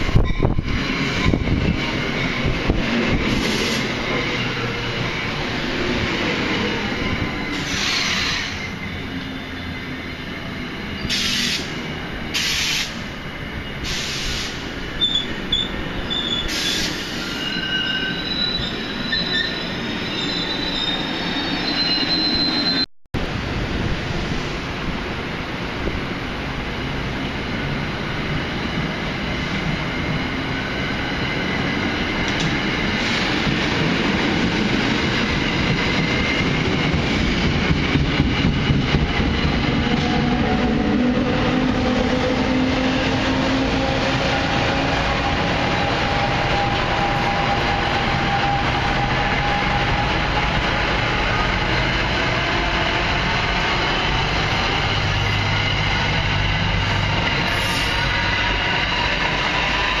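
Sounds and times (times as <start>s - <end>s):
train wheels rumbling on rails: 0.0s - 60.0s
high-pitched wheel squeals: 15.0s - 22.9s.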